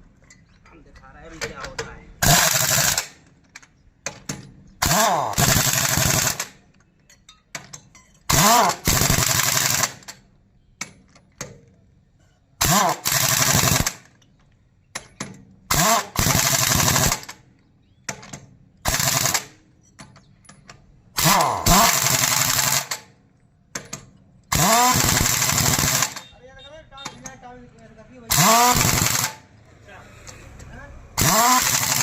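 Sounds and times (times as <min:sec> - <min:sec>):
pneumatic impact wrench: 0:02.2 - 0:03.3, 0:04.1 - 0:06.6, 0:07.6 - 0:10.2, 0:12.6 - 0:14.2, 0:15.0 - 0:26.4, 0:28.3 - 0:29.6, 0:30.2 - 0:32.0.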